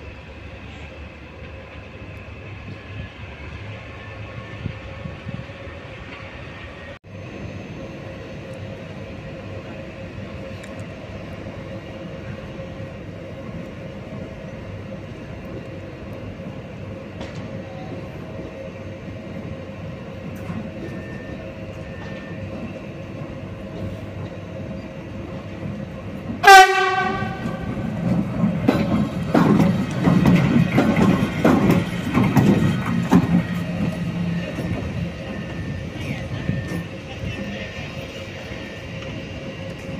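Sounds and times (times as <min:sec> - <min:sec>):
locomotive humming: 0:00.0 - 0:39.9
train rumbling: 0:00.0 - 0:39.9
train horn blast: 0:26.4 - 0:27.9.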